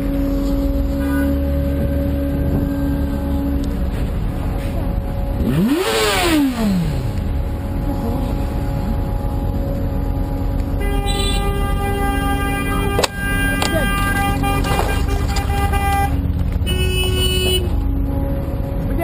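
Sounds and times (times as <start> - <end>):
car horn: 0.0 - 3.6, 8.6 - 18.2
vehicle and road noise drone: 0.0 - 19.0.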